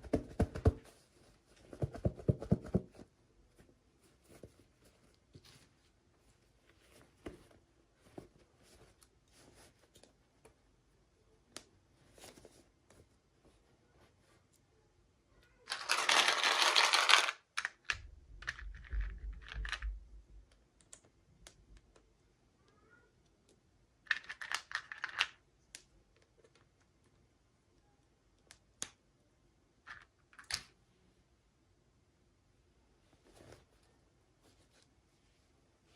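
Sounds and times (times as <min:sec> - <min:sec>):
plastic packaging crinkling: 0:15.7 - 0:17.3
small clicks and taps: 0:17.6 - 0:22.1.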